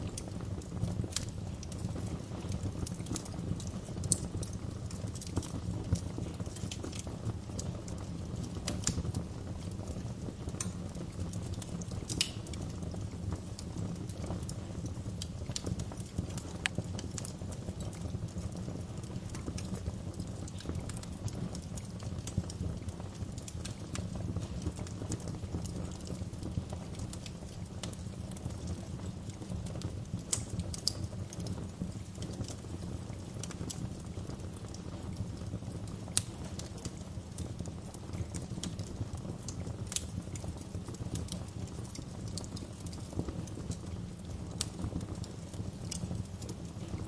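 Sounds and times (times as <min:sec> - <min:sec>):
wood fire crackling: 0:00.0 - 0:47.0
sharp pops and snaps: 0:10.5 - 0:10.8, 0:11.4 - 0:14.3, 0:15.2 - 0:18.1, 0:19.1 - 0:34.8, 0:35.4 - 0:47.0.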